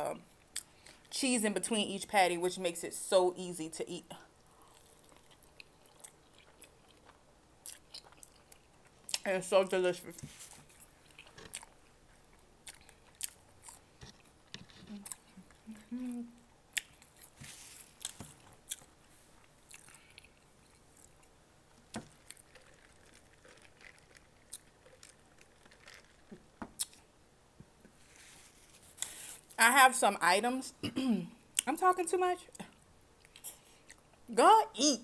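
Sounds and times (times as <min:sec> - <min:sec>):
person chewing food: 0:04.4 - 0:09.2, 0:10.2 - 0:27.1, 0:32.7 - 0:34.2.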